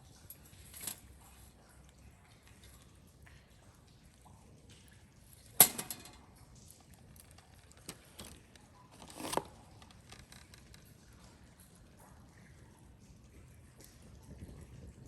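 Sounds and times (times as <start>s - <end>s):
camp gear clattering: 0.3s - 1.1s, 5.6s - 6.2s, 6.9s - 10.8s.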